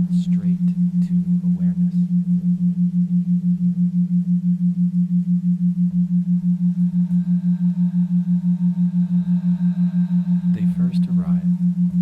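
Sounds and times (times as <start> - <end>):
faint higher tones: 0.0 - 12.0
low pulsing electronic tone: 0.0 - 12.0.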